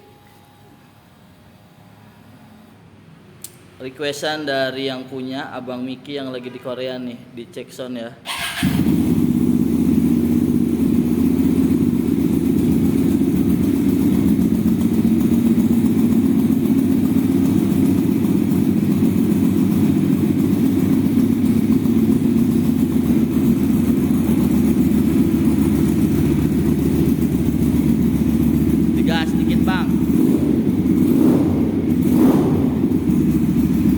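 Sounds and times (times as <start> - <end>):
motorcycle engine idling: 8.3 - 33.9.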